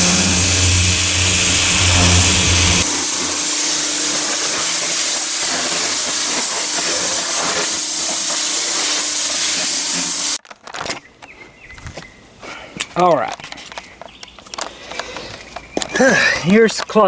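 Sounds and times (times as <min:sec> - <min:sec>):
pressure washer spraying: 0:00.0 - 0:10.4.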